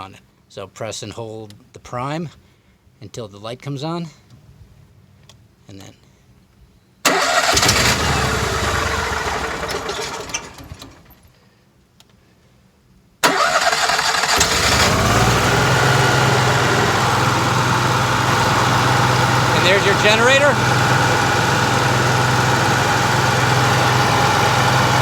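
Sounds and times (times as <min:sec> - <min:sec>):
generator starting and running: 0:07.1 - 0:11.3, 0:13.2 - 0:25.0.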